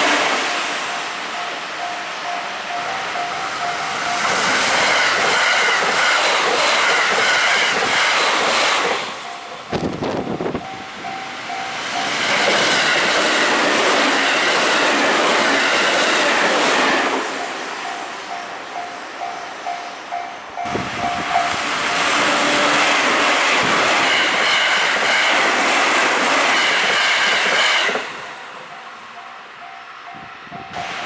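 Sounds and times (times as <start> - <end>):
level-crossing warning bell: 0.0 - 5.9, 9.1 - 13.6, 16.9 - 22.8, 28.4 - 31.0
train wheels clattering on rails: 0.0 - 31.0.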